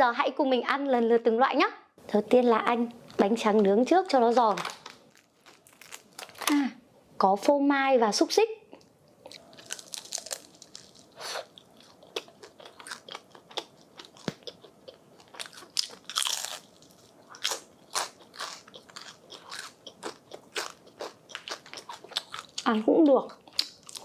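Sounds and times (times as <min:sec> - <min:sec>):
crunching bites and chewing: 0:04.8 - 0:06.6, 0:09.1 - 0:22.7, 0:23.3 - 0:24.0.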